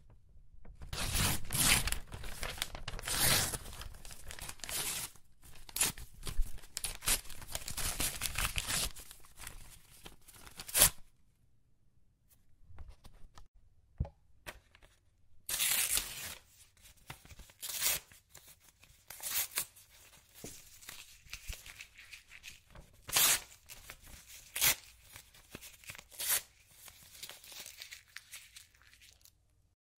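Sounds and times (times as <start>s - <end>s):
paper ripping: 0.9s - 9.6s, 10.3s - 11.0s, 15.5s - 16.4s, 20.4s - 29.3s
faint paper crinkling: 1.4s - 10.6s.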